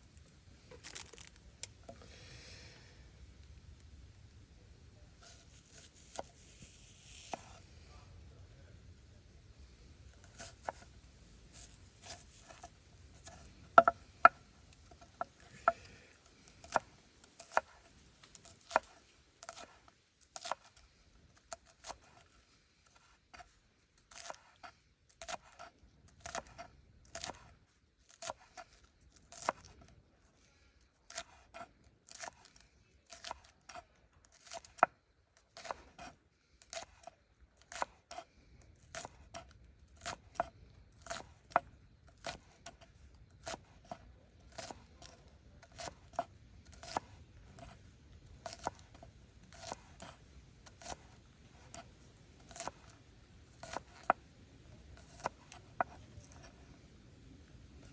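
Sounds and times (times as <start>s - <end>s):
knife chopping on cutting board: 10.3s - 10.9s, 11.6s - 14.4s, 18.5s - 18.9s, 20.4s - 20.7s, 38.9s - 41.4s, 42.2s - 42.8s, 46.8s - 47.8s, 48.4s - 50.2s, 50.8s - 51.9s, 52.5s - 52.9s, 53.6s - 54.2s.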